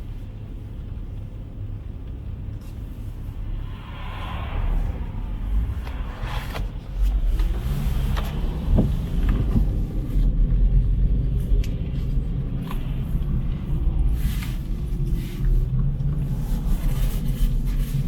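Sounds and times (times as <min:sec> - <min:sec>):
cars driving past: 0:02.6 - 0:18.0.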